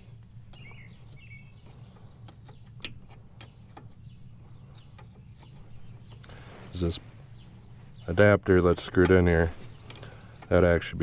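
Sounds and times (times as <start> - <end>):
low steady hum: 0.0 - 11.0
faint bird chirps: 0.5 - 8.5.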